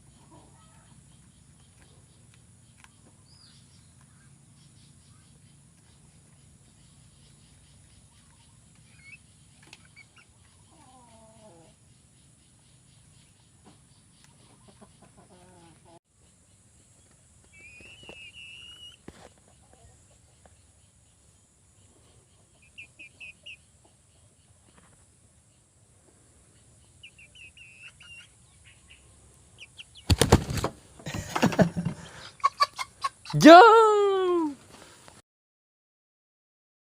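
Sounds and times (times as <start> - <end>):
chicken clucking: 0.0 - 2.0, 7.4 - 11.8, 13.0 - 16.0, 17.4 - 20.6, 21.8 - 25.1, 27.0 - 33.6
chicken chirping: 0.0 - 25.6, 26.4 - 33.7.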